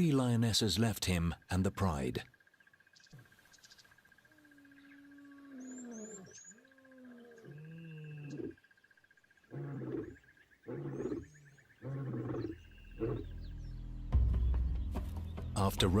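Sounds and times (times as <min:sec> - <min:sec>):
lion roaring: 0:04.6 - 0:08.6, 0:09.5 - 0:13.3.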